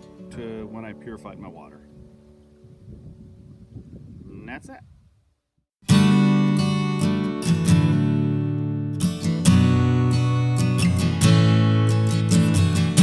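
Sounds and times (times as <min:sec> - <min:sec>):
acoustic guitar strumming chords: 0:00.0 - 0:02.5, 0:05.8 - 0:13.0.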